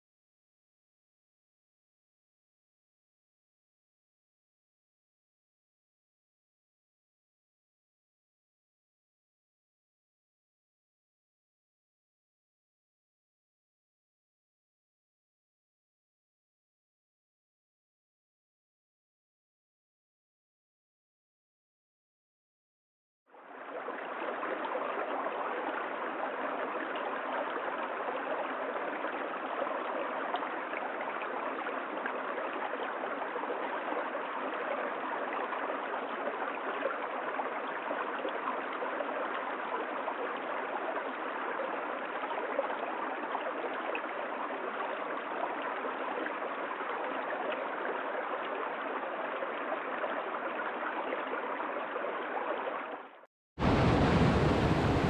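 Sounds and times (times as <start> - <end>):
waterfall rushing: 53.6 - 55.0.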